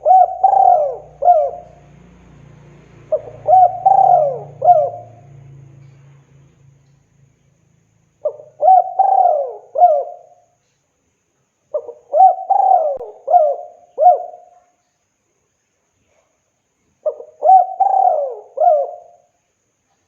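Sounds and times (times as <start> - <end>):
dove cooing: 0.0 - 1.9, 3.0 - 5.9, 8.2 - 10.4, 11.7 - 14.6, 17.0 - 19.3.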